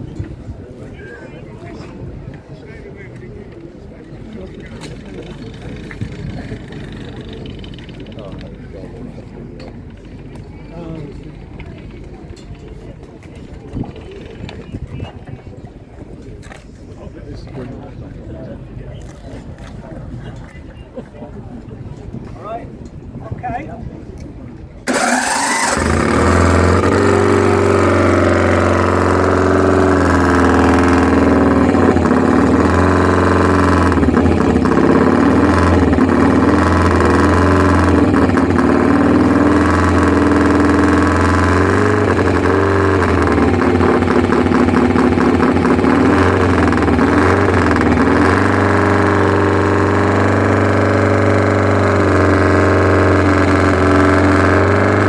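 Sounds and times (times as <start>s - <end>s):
motorcycle engine revving: 24.9s - 55.0s.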